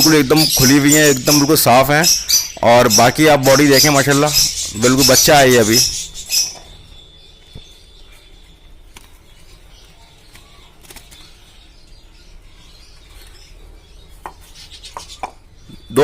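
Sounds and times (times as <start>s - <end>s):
faint bird chirps: 0.0s - 16.0s
birds fluttering wings: 8.8s - 11.6s.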